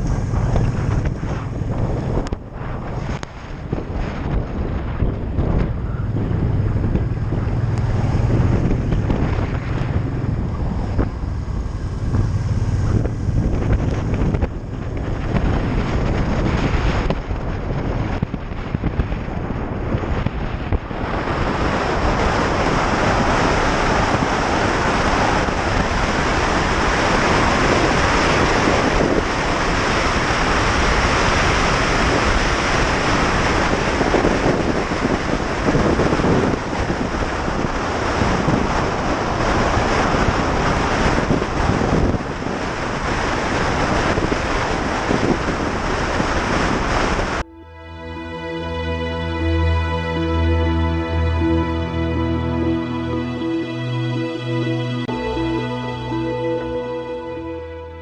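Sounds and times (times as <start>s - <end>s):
motorcycle engine drone: 0.0s - 48.6s
wind rushing over microphone: 0.0s - 57.2s.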